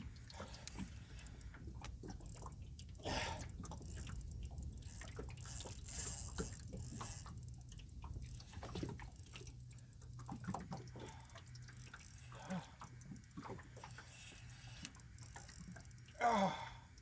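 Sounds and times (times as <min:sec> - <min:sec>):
water lapping against boat hull: 0:00.0 - 0:17.0
light clicks and taps: 0:00.1 - 0:12.2.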